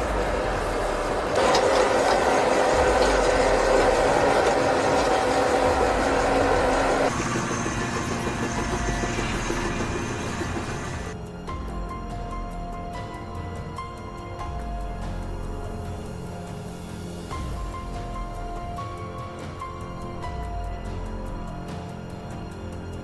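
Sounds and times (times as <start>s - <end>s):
heavy vehicle engine running: 0.0s - 11.1s.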